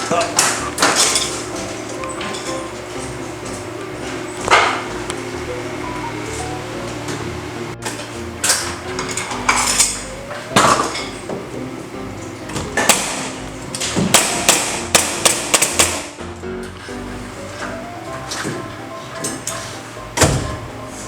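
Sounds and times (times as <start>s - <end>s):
background music: 0.0s - 21.0s
hammer nailing into timber: 12.6s - 16.2s.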